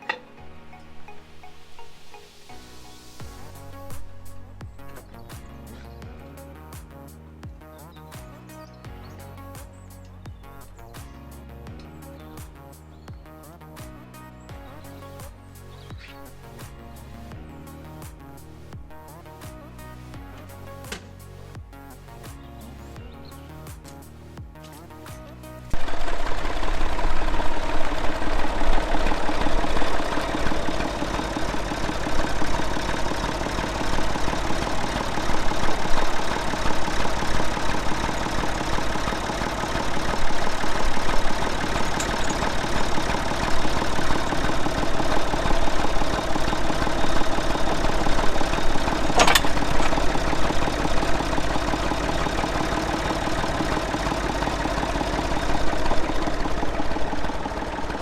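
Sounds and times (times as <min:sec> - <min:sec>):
tractor engine running: 0:25.7 - 0:58.0.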